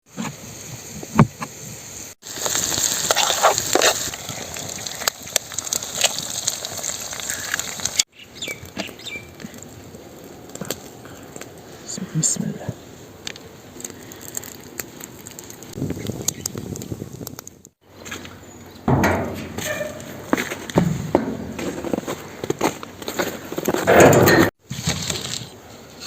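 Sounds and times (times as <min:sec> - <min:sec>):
food sizzling in frying: 0:00.1 - 0:08.1, 0:14.1 - 0:17.7.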